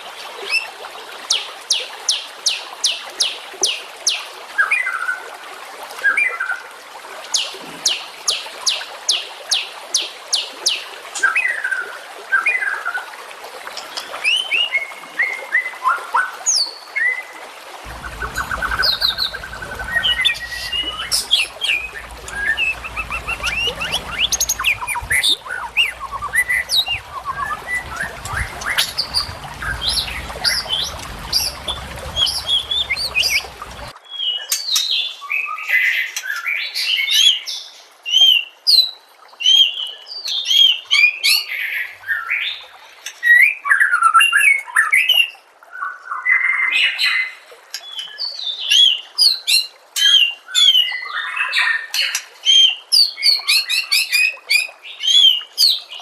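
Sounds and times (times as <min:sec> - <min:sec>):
birds chirping and trilling: 0:17.9 - 0:33.9
low background rumble: 0:17.9 - 0:33.9
songbird singing: 0:17.9 - 0:33.9.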